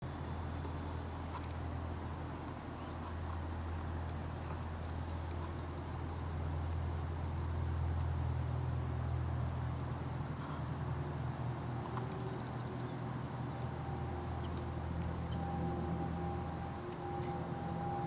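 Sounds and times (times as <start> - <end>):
turboprop engine humming: 0.0 - 18.0
faint high chirps: 12.0 - 18.0.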